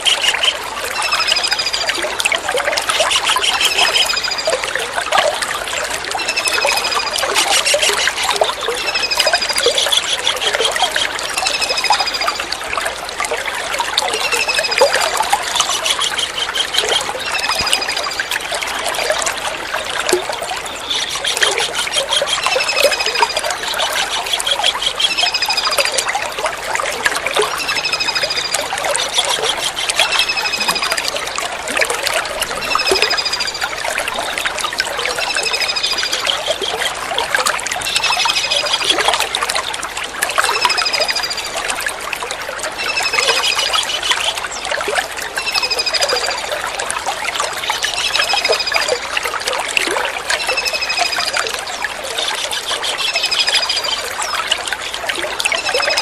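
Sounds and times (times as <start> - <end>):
kingfisher calls: 0.0 - 1.8, 2.8 - 4.5, 27.5 - 31.3
trickle of running water: 0.0 - 56.0.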